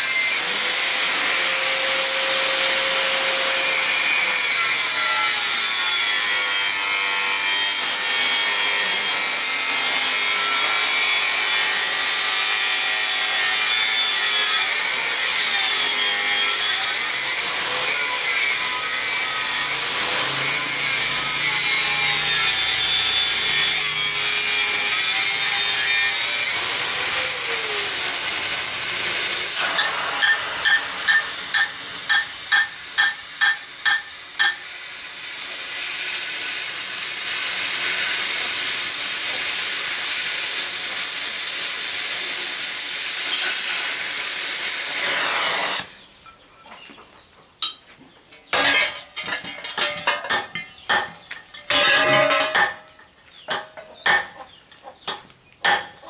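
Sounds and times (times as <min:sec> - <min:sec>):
cutting torch hissing: 0:04.8 - 0:46.0.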